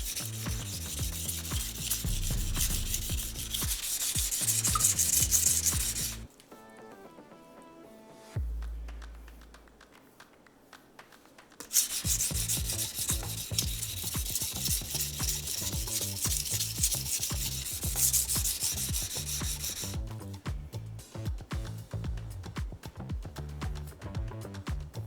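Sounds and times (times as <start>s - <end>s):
knife grinding on whetstone: 0.0s - 6.3s, 11.6s - 20.0s.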